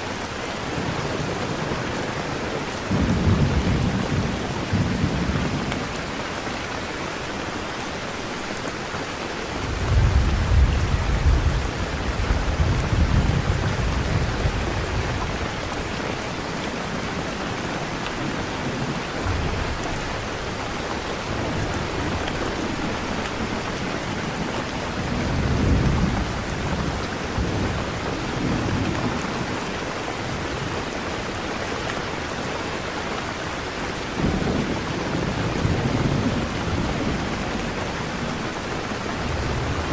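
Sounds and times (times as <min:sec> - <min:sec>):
heavy rain: 0:00.0 - 0:39.9
thunder rumbling: 0:09.6 - 0:29.6, 0:34.1 - 0:39.9.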